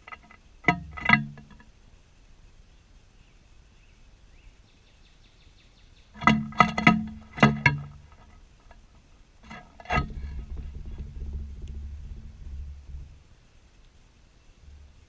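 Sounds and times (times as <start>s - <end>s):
sharp hollow knocks: 0.0s - 1.7s, 6.2s - 8.8s, 9.4s - 13.4s.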